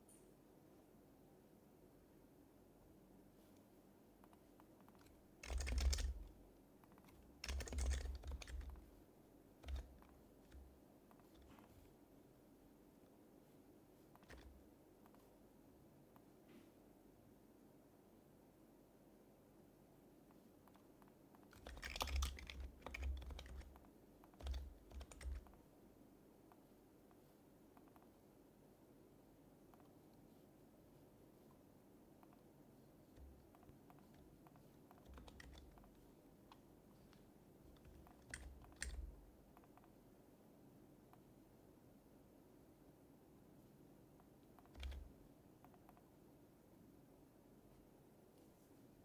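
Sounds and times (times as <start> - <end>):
keyboard typing: 4.3 - 11.9, 14.2 - 15.2, 21.4 - 25.6, 33.2 - 39.9, 44.6 - 46.1.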